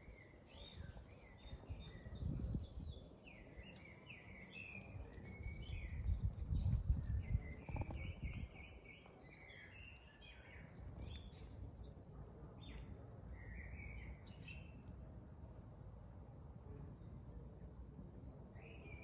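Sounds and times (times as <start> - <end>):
small birds chirping: 3.6 - 11.7.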